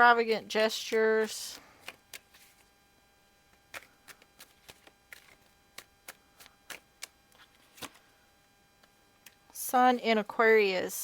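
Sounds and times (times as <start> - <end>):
cards being shuffled: 1.8 - 2.7, 3.7 - 8.0.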